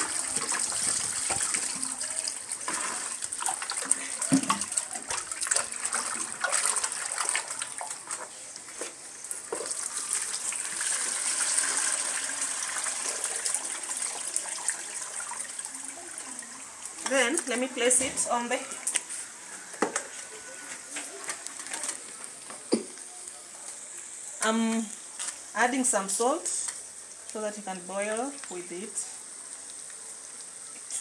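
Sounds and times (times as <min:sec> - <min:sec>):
water splashing and sloshing: 0:00.0 - 0:11.1.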